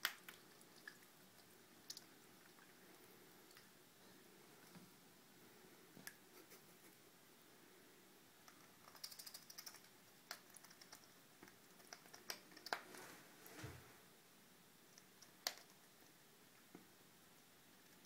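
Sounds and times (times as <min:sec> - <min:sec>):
faint clicks and taps: 0:14.9 - 0:16.9.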